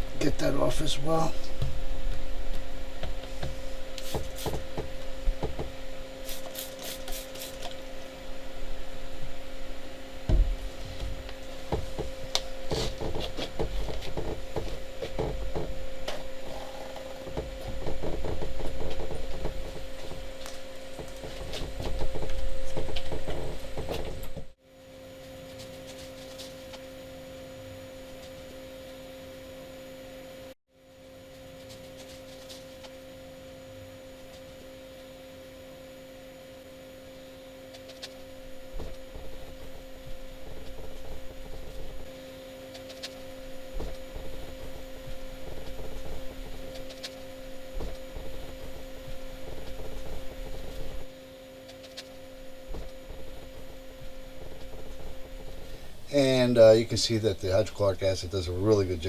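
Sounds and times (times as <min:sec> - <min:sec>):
steady electrical hum: 0:00.0 - 0:59.0
rubbing and knocking on fiberglass: 0:03.0 - 0:07.8, 0:10.2 - 0:24.5, 0:42.8 - 0:51.1.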